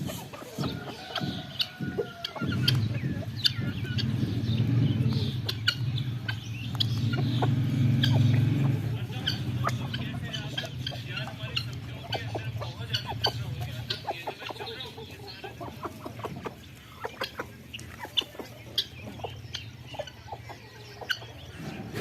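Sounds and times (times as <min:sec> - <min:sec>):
birds chirping: 0:00.0 - 0:22.0
chickens clucking: 0:00.0 - 0:22.0.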